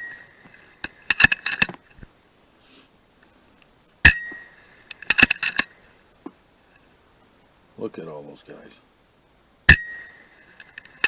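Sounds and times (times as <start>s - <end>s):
metallic clicks of rifle lever: 0.5s - 1.8s, 4.9s - 5.7s.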